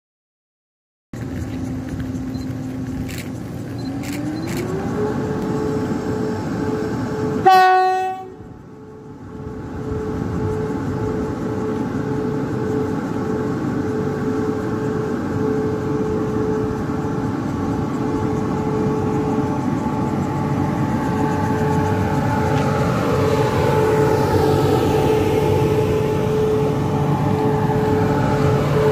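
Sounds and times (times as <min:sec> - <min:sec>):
train rumble with electric whine: 0:01.2 - 0:28.9
train horn blast: 0:05.4 - 0:08.6.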